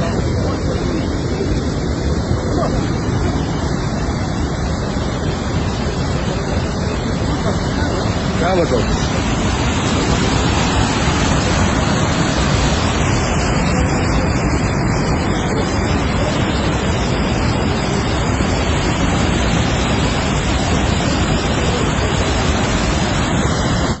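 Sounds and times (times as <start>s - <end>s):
fast-flowing water rushing: 0.0s - 24.0s.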